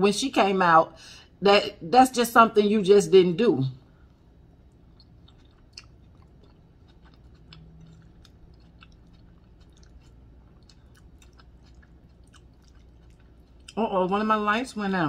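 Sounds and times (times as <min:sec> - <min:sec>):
wet chewing mouth sounds: 0:04.7 - 0:13.8.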